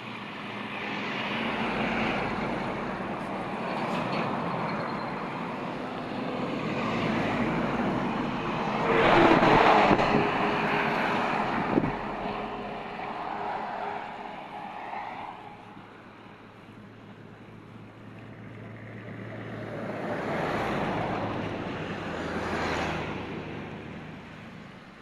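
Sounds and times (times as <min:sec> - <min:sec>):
vehicle passing: 0:05.6 - 0:16.4.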